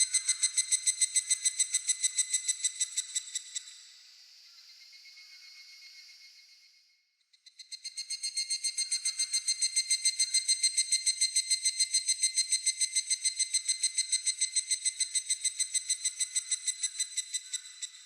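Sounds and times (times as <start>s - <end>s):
cicada ringing trill: 0.0s - 3.7s, 7.6s - 18.0s.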